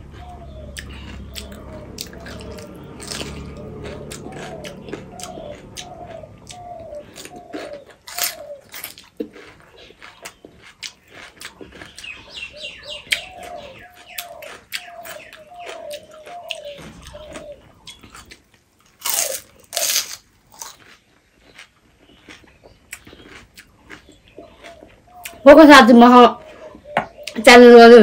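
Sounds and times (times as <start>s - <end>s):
bird calling: 0.0s - 9.0s, 11.8s - 18.3s, 24.1s - 28.0s
crunching and chewing: 0.0s - 25.4s.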